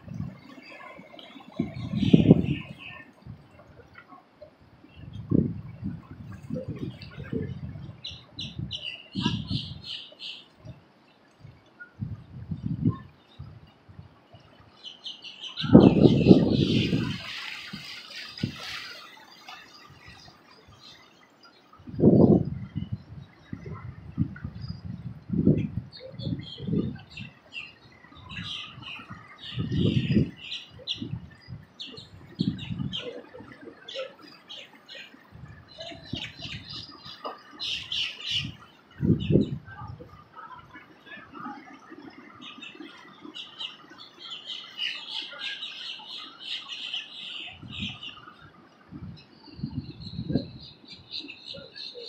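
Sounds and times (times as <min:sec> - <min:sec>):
wind buffeting microphone: 0:00.0 - 0:03.9, 0:04.9 - 0:10.0, 0:11.4 - 0:14.3, 0:15.5 - 0:18.9, 0:21.7 - 0:33.7, 0:35.3 - 0:42.4, 0:47.5 - 0:51.8
birds chirping: 0:00.4 - 0:03.2, 0:06.7 - 0:13.5, 0:14.7 - 0:23.8, 0:25.9 - 0:52.0.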